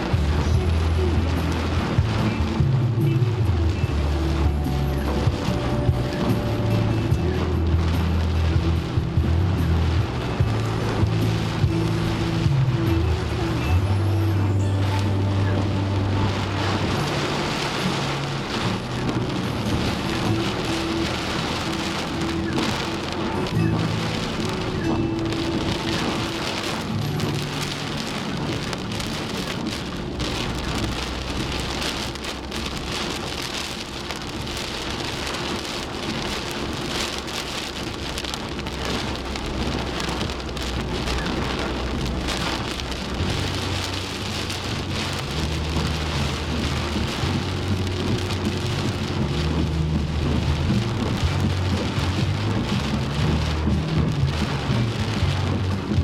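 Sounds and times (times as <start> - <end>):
heavy rain pouring: 0.0 - 56.0
low rumble: 0.0 - 56.0.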